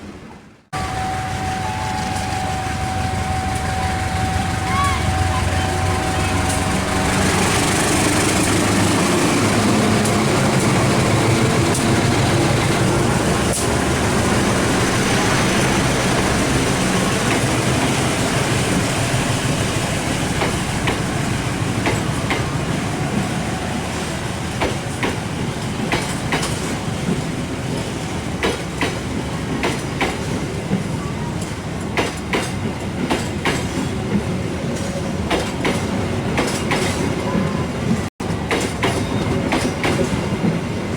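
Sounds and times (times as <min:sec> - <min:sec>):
wheels clicking over rail joints: 0:00.8 - 0:23.3, 0:24.4 - 0:40.9
diesel engine drone: 0:00.8 - 0:23.8.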